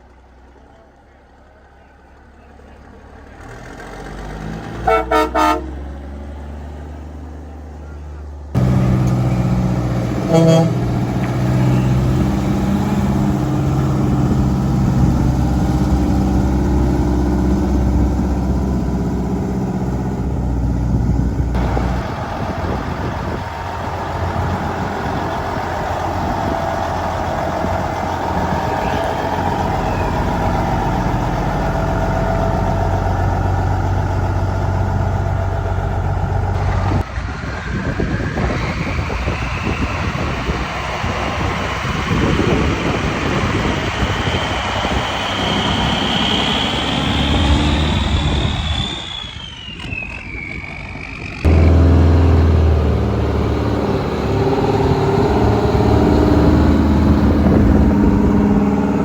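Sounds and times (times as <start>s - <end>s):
truck engines driving by: 0.0s - 59.0s
truck horn toot: 4.8s - 5.9s, 8.6s - 12.3s.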